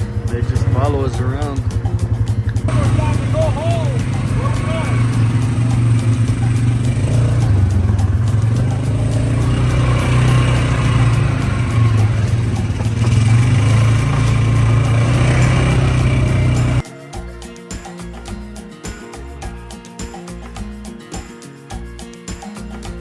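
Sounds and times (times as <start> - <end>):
vehicle engine running: 0.0 - 16.8.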